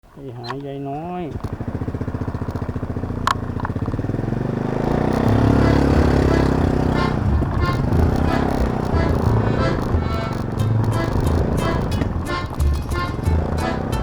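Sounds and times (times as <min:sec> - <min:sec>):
scooter engine running: 0:00.5 - 0:14.0
sharp click: 0:04.9 - 0:13.4.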